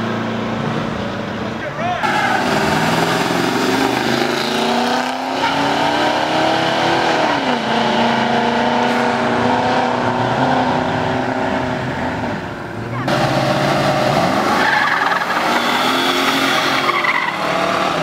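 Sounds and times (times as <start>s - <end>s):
car engines revving hard: 0.0s - 18.0s.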